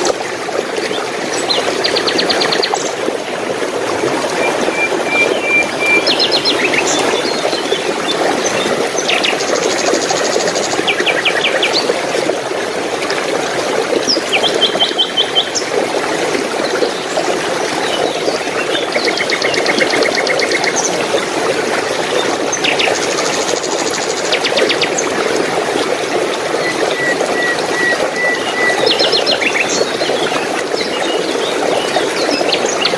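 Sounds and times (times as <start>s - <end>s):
running water rushing: 0.0s - 32.9s
small birds singing: 4.5s - 11.9s.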